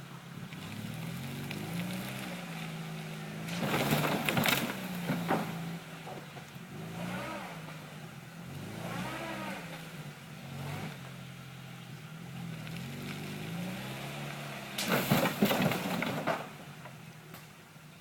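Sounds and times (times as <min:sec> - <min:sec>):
car engine revving: 0:00.2 - 0:16.3
clatter of knocks and scraping: 0:03.5 - 0:06.6, 0:14.8 - 0:17.5.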